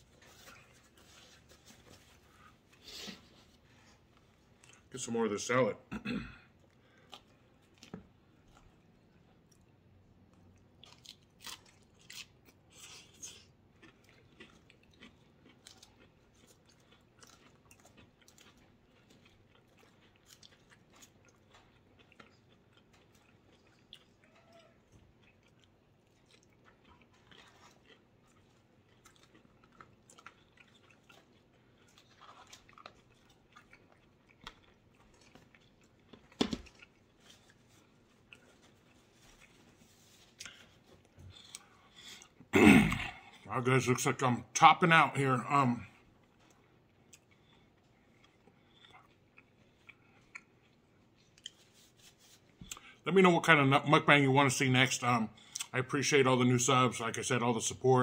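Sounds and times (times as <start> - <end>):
chewing crunchy salad: 6.5 - 43.4, 45.9 - 53.0, 55.4 - 55.8.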